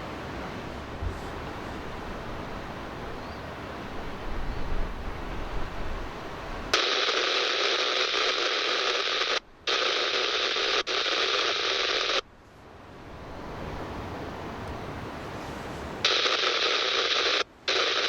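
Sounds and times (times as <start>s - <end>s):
radio static hiss: 6.7s - 12.3s, 15.8s - 18.0s.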